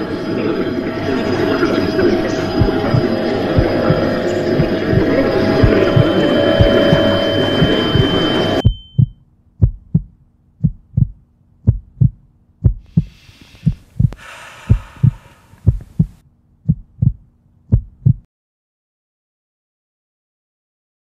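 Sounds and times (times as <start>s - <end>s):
faint low hum: 0.0s - 18.2s
heartbeat: 1.1s - 18.3s
soft breathy hiss: 12.8s - 16.2s.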